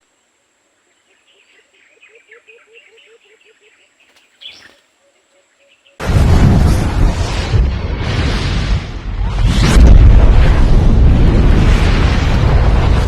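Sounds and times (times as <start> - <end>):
bird chirping: 0.7 - 6.0
loud rushing blast: 6.0 - 13.0.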